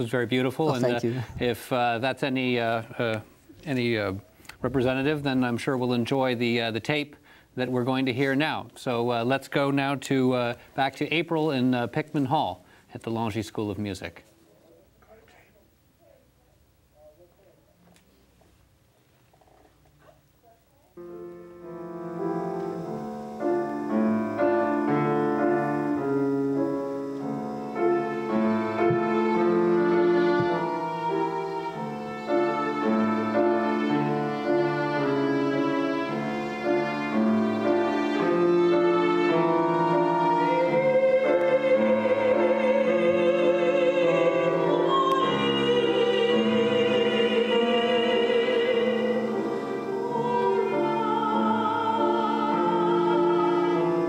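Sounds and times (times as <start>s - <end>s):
piano playing: 21.0s - 54.0s
violin melody: 21.0s - 54.0s.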